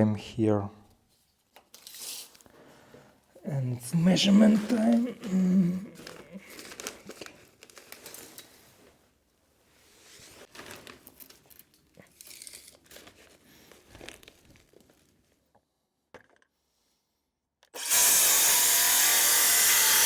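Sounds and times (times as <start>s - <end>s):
rustling and crinkling handling noise: 3.8s - 15.6s
small clicks and scrapes: 10.5s - 15.0s.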